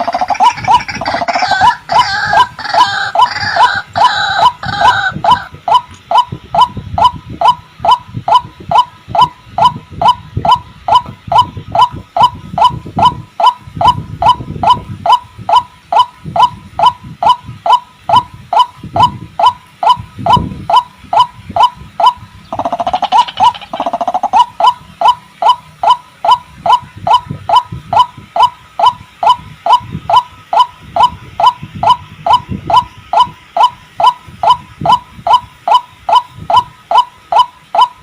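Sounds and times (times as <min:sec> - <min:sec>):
louder lower-pitched bird call: 0:00.0 - 0:08.8, 0:20.7 - 0:29.4
waterhen calling rapid hooked notes: 0:00.0 - 0:38.0.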